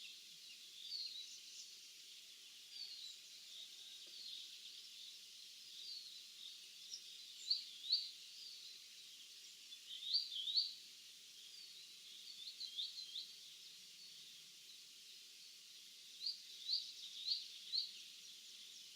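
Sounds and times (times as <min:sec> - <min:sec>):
songbirds chirping: 0:00.0 - 0:18.9.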